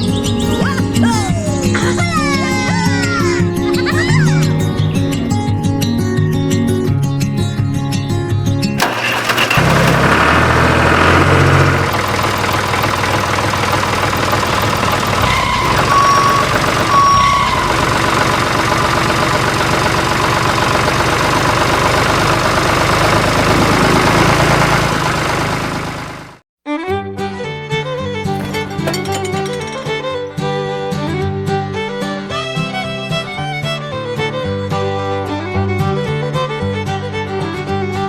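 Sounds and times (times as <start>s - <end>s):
small tractor engine running: 8.8s - 26.4s, 28.3s - 30.6s
short high beeps: 15.3s - 17.7s.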